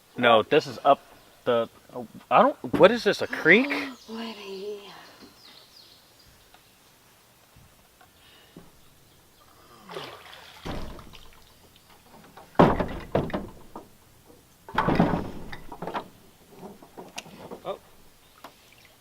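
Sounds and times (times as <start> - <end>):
water sloshing: 9.7 - 13.8
splash-like rush: 9.9 - 11.4.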